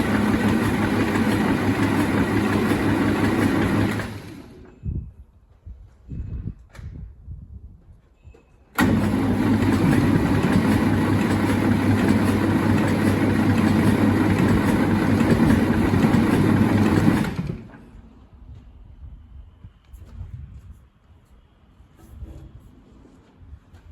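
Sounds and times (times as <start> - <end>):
diesel tractor engine cranking: 0.0 - 4.8, 8.8 - 18.0.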